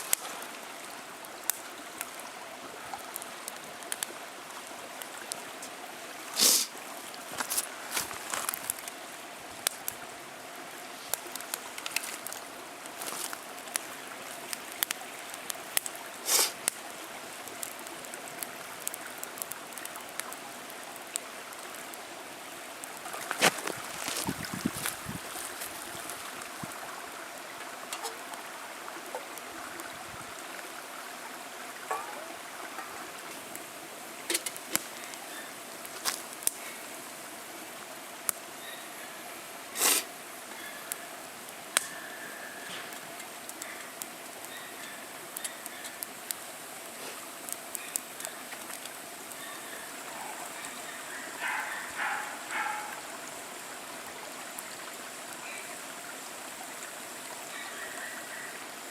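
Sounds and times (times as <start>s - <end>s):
steady rushing hiss: 0.0s - 58.9s
wood fire crackling: 0.0s - 58.9s.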